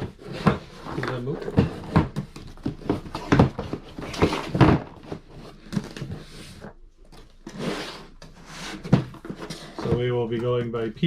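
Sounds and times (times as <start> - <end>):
boxes knocking on a table: 0.0 - 6.1, 8.8 - 10.8.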